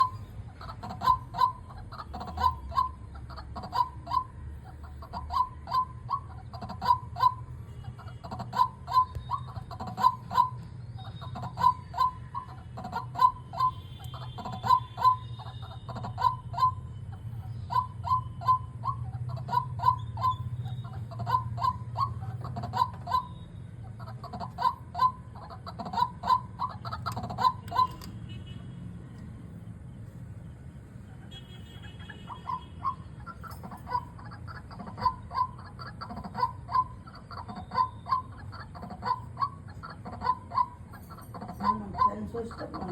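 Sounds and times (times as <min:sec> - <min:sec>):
bird calling in short clusters: 0:24.0 - 0:28.2.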